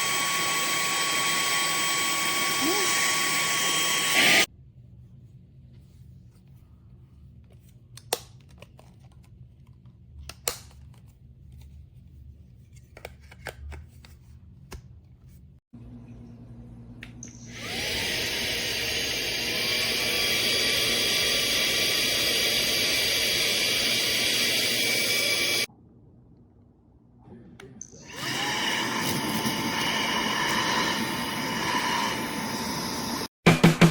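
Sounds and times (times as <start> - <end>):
handheld vacuum motor whine: 0.0 - 4.5, 17.2 - 25.7, 28.0 - 33.4.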